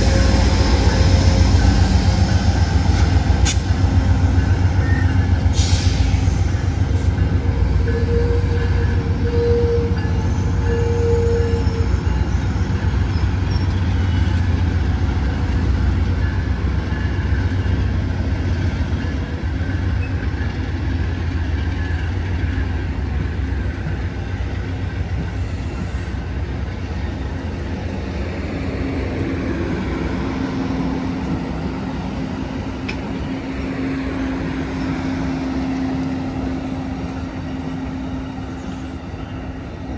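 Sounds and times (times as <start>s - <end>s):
diesel locomotive engine rumble: 0.0s - 39.9s.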